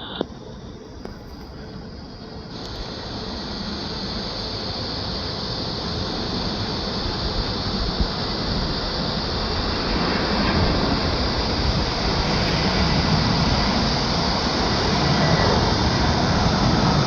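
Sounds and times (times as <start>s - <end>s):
jet engine rushing: 0.0s - 17.0s.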